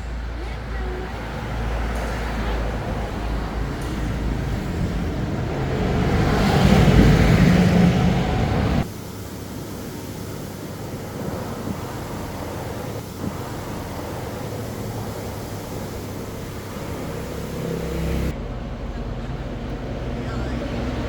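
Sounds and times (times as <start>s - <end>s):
outdoor background noise: 0.0s - 21.0s
vehicle passing close: 0.0s - 21.0s.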